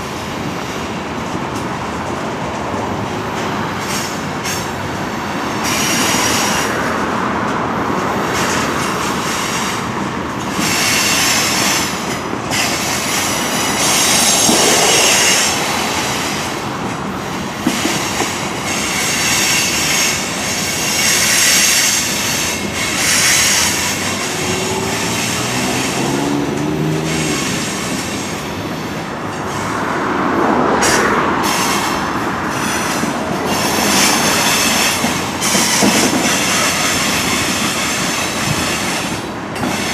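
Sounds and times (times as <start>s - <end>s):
train wheels rumbling and clacking: 0.0s - 39.9s
high-pitched wheel squeal: 18.6s - 28.5s.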